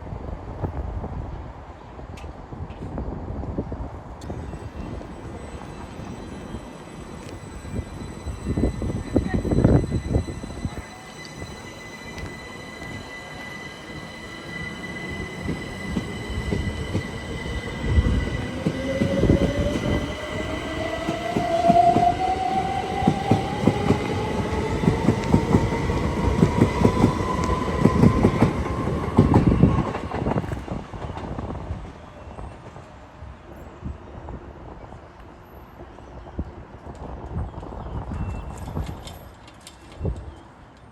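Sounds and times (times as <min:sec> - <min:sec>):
electric train motor whine: 0:04.5 - 0:28.6.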